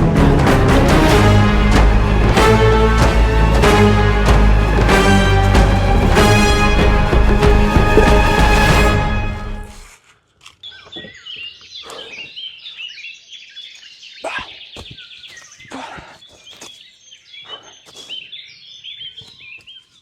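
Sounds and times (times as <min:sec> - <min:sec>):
sharp knocks: 0:06.8 - 0:09.0
songbirds chirping and trilling: 0:10.6 - 0:20.0.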